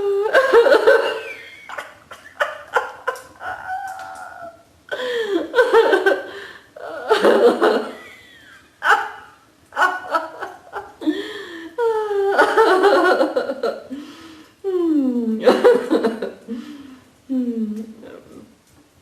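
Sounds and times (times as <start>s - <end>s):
person laughing out loud: 0.0s - 13.9s.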